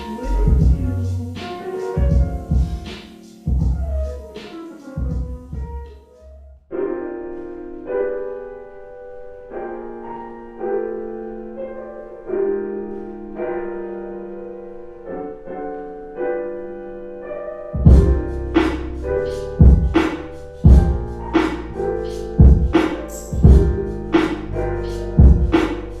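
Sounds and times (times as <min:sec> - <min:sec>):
drum beat with deep kick: 0:00.0 - 0:04.2, 0:05.0 - 0:05.9, 0:17.8 - 0:18.8, 0:19.6 - 0:21.6, 0:22.4 - 0:24.4, 0:25.2 - 0:25.9
soft piano chords: 0:00.0 - 0:26.0.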